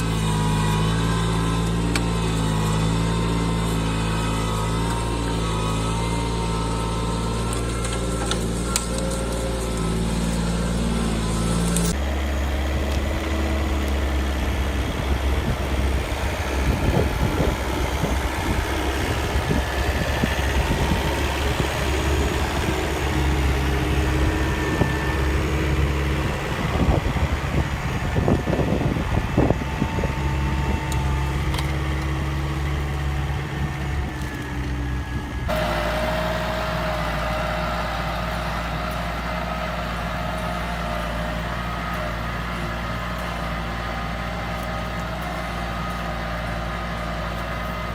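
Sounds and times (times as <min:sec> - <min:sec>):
engine running evenly: 0:00.0 - 0:47.9
tractor engine running: 0:00.0 - 0:47.9.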